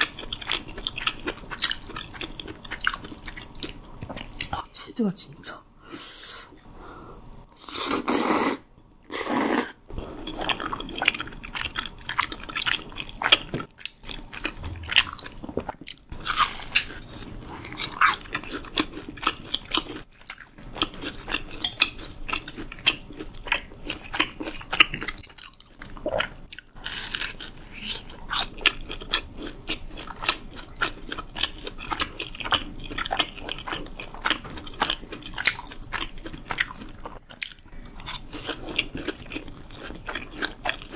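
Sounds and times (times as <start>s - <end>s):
crunching chewing: 10.1s - 40.9s.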